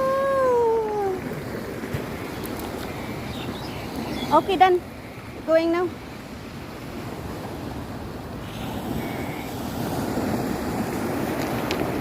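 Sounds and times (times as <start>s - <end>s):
surf washing onto shore: 0.0s - 12.0s
wind rumbling on microphone: 0.0s - 12.0s.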